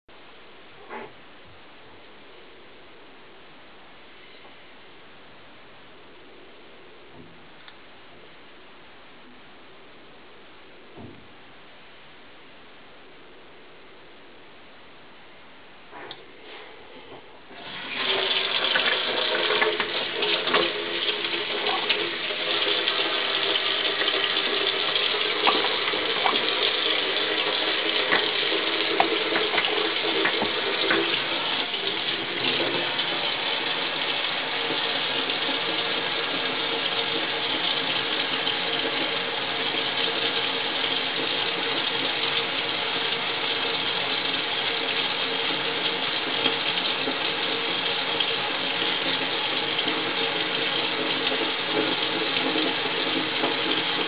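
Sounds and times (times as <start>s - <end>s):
running water rushing: 17.5s - 54.0s.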